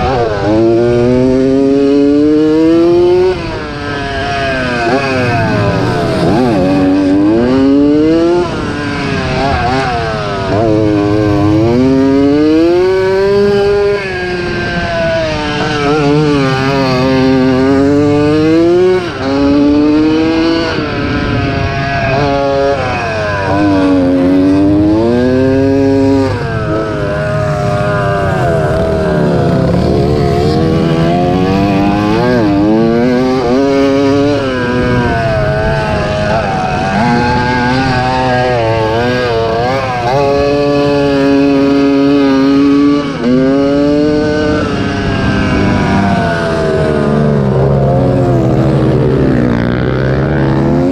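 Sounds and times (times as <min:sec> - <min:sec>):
motorcycle engine revving hard: 0:00.0 - 0:50.9.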